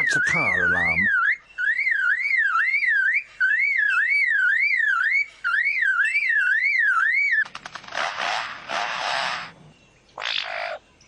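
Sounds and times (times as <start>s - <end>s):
lyrebird mimicking car alarm: 0.0s - 7.4s
rapid bird clicks: 7.4s - 9.3s.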